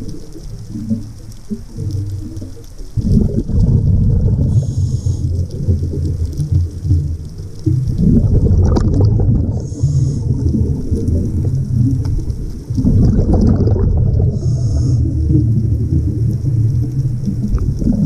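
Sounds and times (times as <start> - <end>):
constant low rumble: 0.0 - 18.0
exhaled bubbles gushing: 0.0 - 18.0
regulator inhale hiss: 4.5 - 5.6, 9.5 - 10.6, 14.3 - 15.4.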